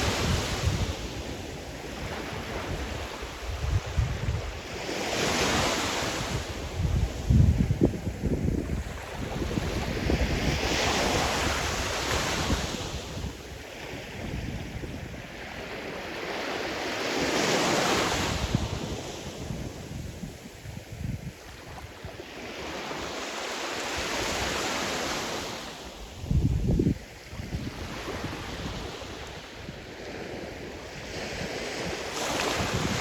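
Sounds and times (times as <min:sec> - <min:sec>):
wind buffeting microphone: 0:00.0 - 0:15.6, 0:26.2 - 0:33.0
waves breaking on shore: 0:00.0 - 0:33.0.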